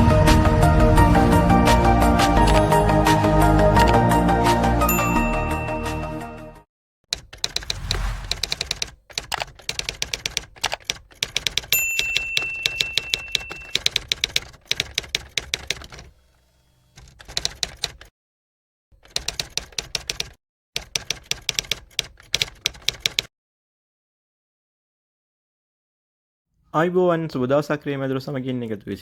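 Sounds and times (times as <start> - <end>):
typewriter bell ding: 4.9 - 5.8, 11.7 - 14.0
typewriter key clacks: 10.7 - 14.3.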